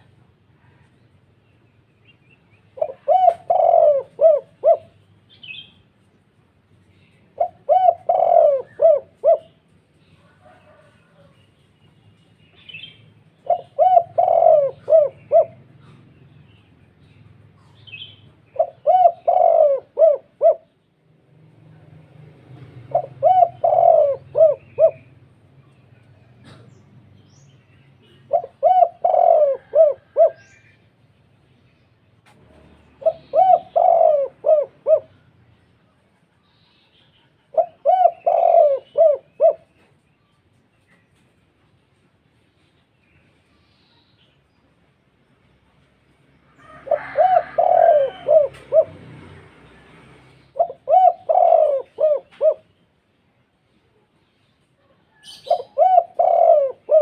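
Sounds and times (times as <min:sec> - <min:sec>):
dove cooing: 0:02.7 - 0:05.6, 0:07.3 - 0:11.3, 0:13.3 - 0:16.3, 0:17.6 - 0:20.8, 0:22.8 - 0:25.3, 0:28.0 - 0:30.8, 0:32.4 - 0:35.4, 0:37.3 - 0:40.0, 0:46.6 - 0:53.0, 0:55.1 - 0:57.0.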